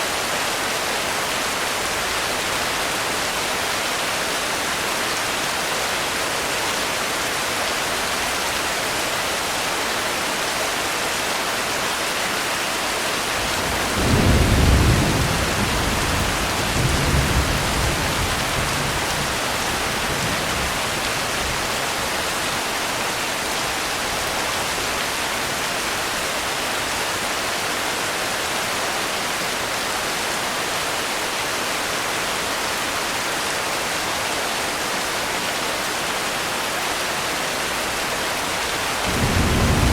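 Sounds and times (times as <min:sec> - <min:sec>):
heavy rain: 0:00.0 - 0:39.9
thunder rumbling: 0:13.4 - 0:21.4, 0:39.0 - 0:39.9.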